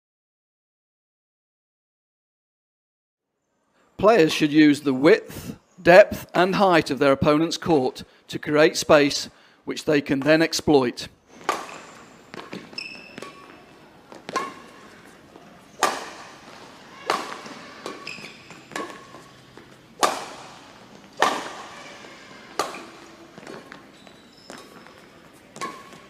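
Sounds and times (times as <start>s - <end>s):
rackets hitting shuttlecock: 11.3s - 26.0s
shoe squeaks: 11.3s - 26.0s.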